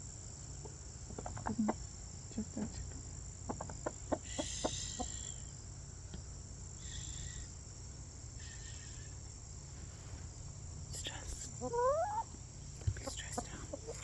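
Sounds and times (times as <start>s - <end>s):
hen clucking: 1.0s - 5.6s, 11.5s - 14.0s
hen calls: 3.5s - 5.5s, 11.5s - 12.4s.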